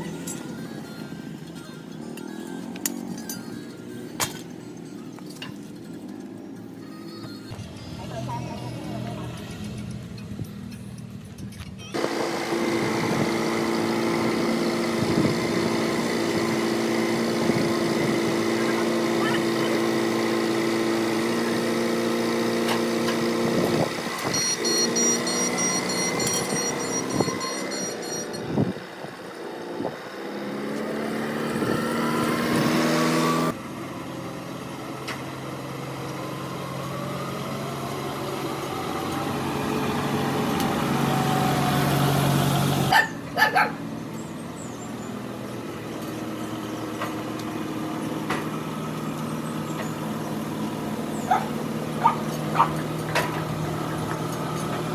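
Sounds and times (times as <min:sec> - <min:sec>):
engine running: 0:00.0 - 0:54.9.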